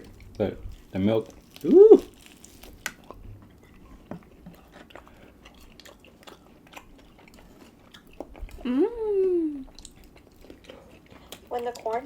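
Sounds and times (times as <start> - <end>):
people chewing food: 0.0 - 12.0
faint clicks and smacks: 9.7 - 12.0.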